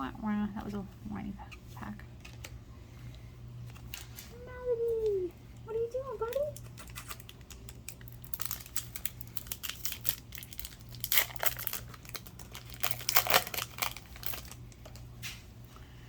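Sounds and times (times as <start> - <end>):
foil wrapper crinkling and tearing: 6.3 - 15.2.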